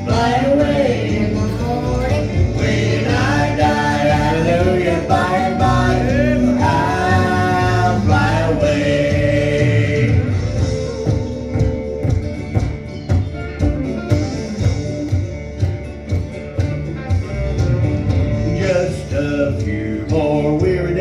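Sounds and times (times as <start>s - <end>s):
person singing: 0.0s - 11.0s
country gospel band playing: 0.0s - 21.0s.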